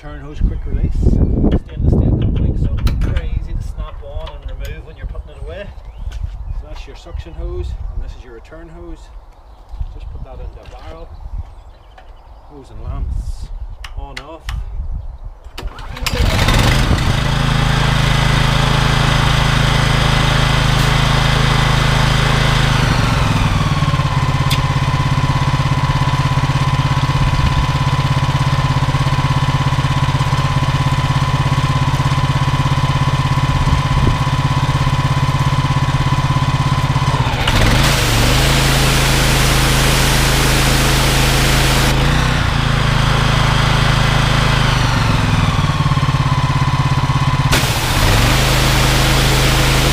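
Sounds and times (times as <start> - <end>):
petrol engine running: 15.6 - 26.6, 34.4 - 46.2, 46.9 - 49.9
high-pressure water spray hissing: 37.5 - 42.2, 47.5 - 49.9.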